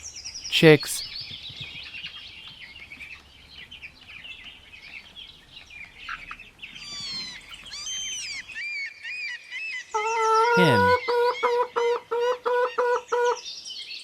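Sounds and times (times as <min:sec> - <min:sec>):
chicks peeping: 0:00.0 - 0:08.6
longer falling peeps: 0:10.6 - 0:11.0.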